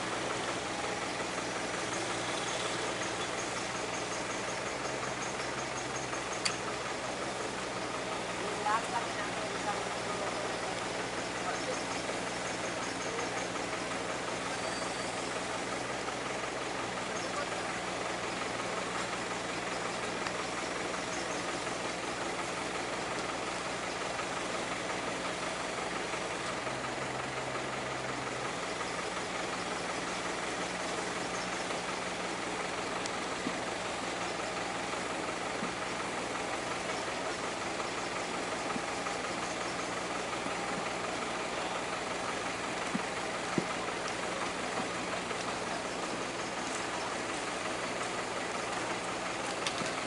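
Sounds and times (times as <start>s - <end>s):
heavy vehicle engine idling: 0.0s - 50.0s
faint tick: 6.4s - 6.6s.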